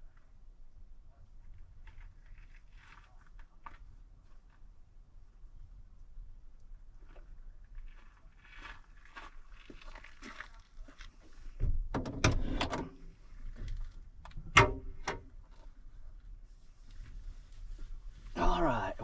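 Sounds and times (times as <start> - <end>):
van door opening and shutting: 11.6 - 13.8, 14.4 - 15.3
soft rustling: 15.4 - 18.4.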